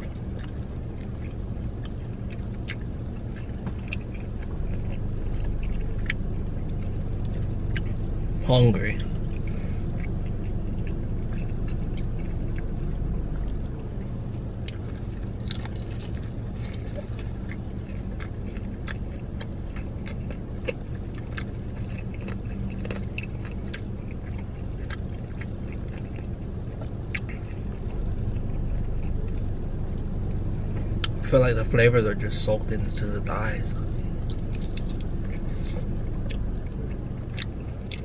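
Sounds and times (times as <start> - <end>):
chewing crispy fried chicken: 0.0 - 38.0
low rumble inside car cabin: 0.0 - 38.0.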